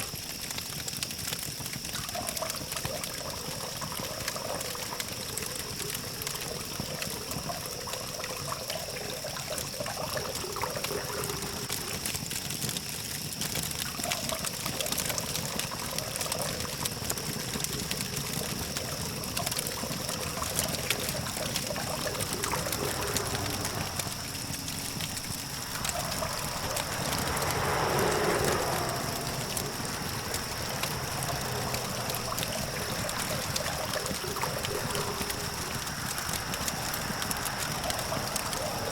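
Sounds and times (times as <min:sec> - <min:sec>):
campfire crackling and popping: 0:00.0 - 0:38.9
distant traffic hum: 0:02.0 - 0:12.4, 0:13.7 - 0:38.9
vehicle passing: 0:10.0 - 0:12.1, 0:15.0 - 0:38.9
steady high whine: 0:20.2 - 0:37.2.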